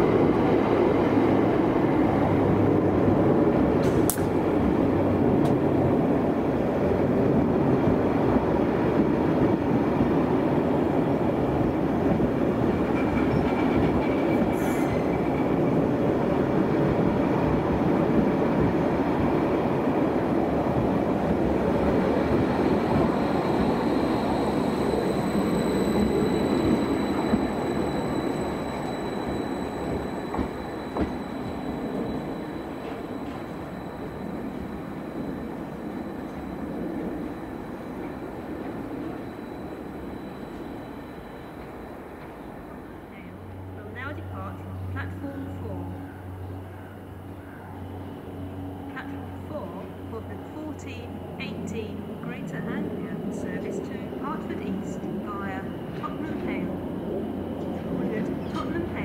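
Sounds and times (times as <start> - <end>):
train wheels rumbling on rail: 0.0 - 59.0
thin high whine: 21.6 - 59.0.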